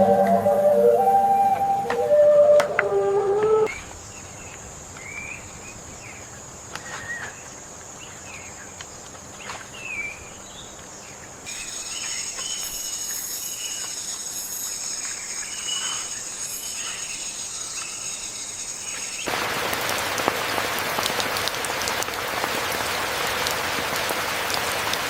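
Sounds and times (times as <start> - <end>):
high-pitched insect drone: 11.5 - 19.3.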